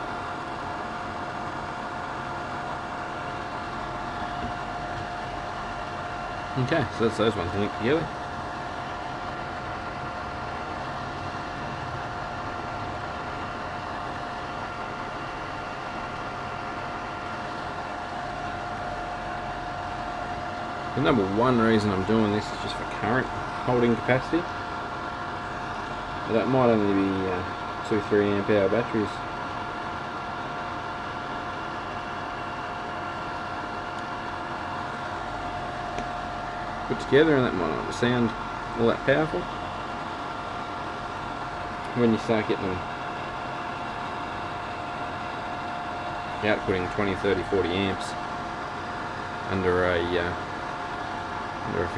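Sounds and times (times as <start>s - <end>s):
faint steady whine: 0.0s - 51.9s
machine hum: 0.0s - 51.9s.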